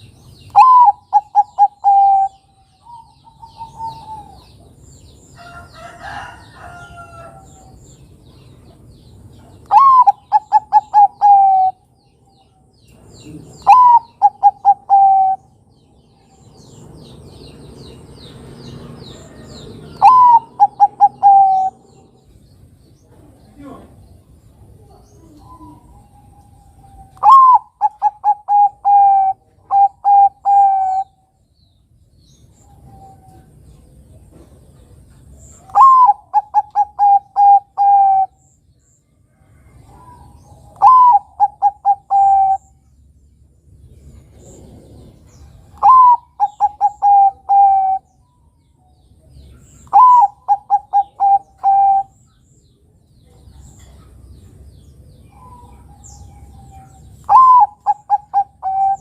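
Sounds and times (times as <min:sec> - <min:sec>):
zebra dove cooing: 0:00.6 - 0:04.5, 0:09.6 - 0:11.8, 0:13.2 - 0:15.5, 0:19.9 - 0:22.0, 0:25.2 - 0:31.2, 0:35.6 - 0:38.4, 0:39.9 - 0:42.7, 0:45.0 - 0:48.1, 0:49.8 - 0:52.2, 0:56.6 - 0:59.0.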